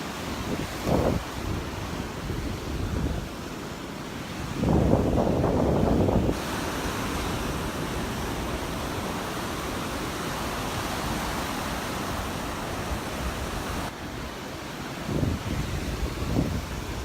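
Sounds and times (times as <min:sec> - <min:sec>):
surf washing on beach: 0:00.0 - 0:17.0.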